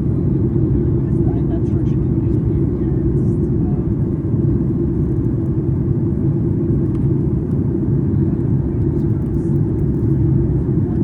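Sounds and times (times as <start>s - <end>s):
airplane cabin engine drone: 0.0s - 11.0s.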